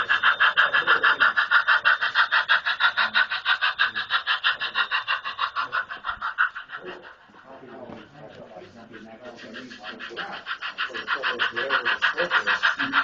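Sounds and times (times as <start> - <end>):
model train running: 0.0 - 13.0.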